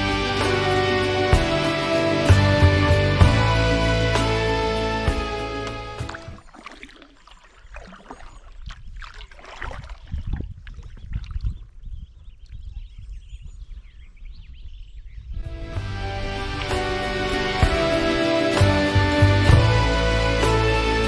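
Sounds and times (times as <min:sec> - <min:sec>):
background music: 0:00.0 - 0:06.4, 0:15.5 - 0:21.0
water trickling: 0:00.1 - 0:11.7
paddle strokes splashing: 0:00.2 - 0:11.4, 0:15.6 - 0:21.0
low rumble: 0:15.4 - 0:20.6.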